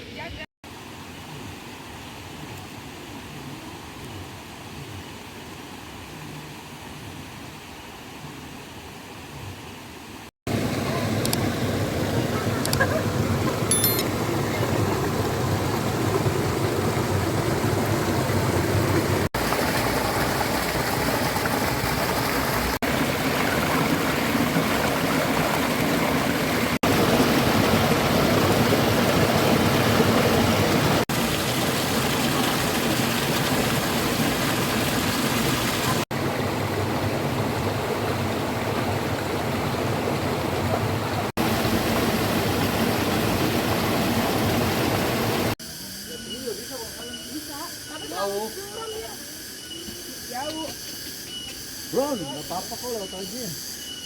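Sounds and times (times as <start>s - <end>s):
heavy rain pouring: 10.5s - 45.6s.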